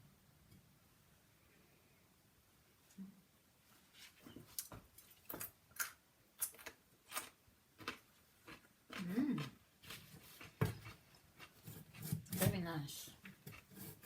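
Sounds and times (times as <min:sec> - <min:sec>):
knife cutting vegetables on board: 0:09.8 - 0:14.0.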